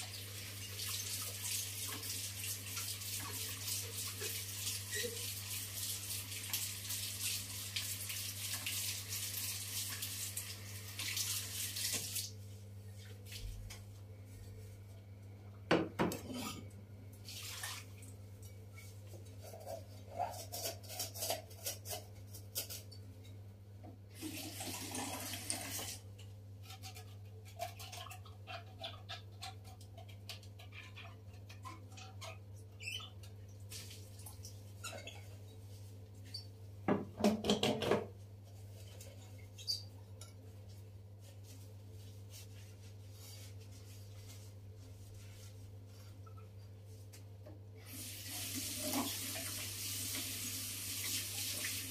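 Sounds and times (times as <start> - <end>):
tap running into sink: 36.9 - 38.1.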